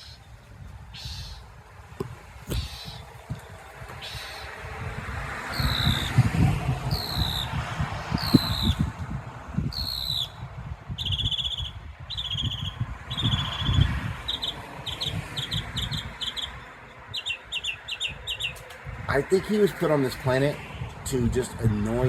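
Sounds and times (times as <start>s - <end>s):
mockingbird singing: 0.0s - 1.5s, 2.5s - 4.6s, 5.5s - 6.2s, 6.9s - 7.6s, 8.2s - 8.9s, 9.7s - 18.7s.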